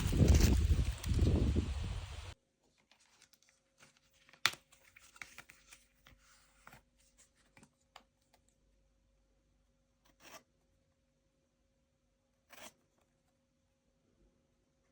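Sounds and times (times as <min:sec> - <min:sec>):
handling clicks and rustles: 0:00.0 - 0:01.6.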